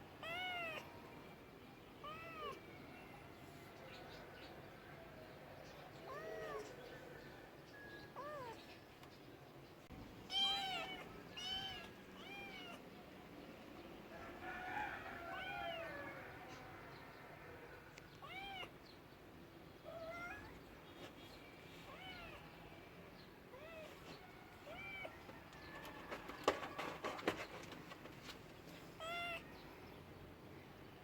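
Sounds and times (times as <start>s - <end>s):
cat meowing: 0.2s - 0.9s, 2.0s - 2.6s, 6.0s - 6.8s, 8.2s - 8.6s, 10.3s - 12.8s, 15.3s - 16.0s, 18.2s - 18.7s, 19.9s - 20.6s, 21.9s - 22.5s, 23.5s - 23.9s, 24.6s - 25.2s, 29.0s - 29.5s.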